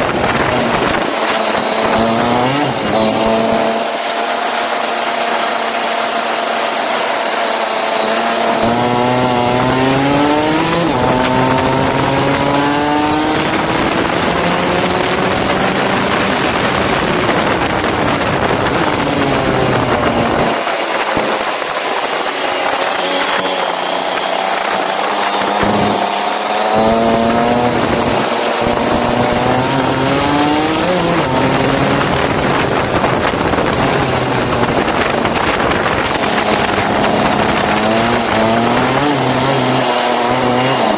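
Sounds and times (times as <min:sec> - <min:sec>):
go-kart engine running: 0:00.0 - 0:40.9
rushing noise: 0:07.2 - 0:40.9.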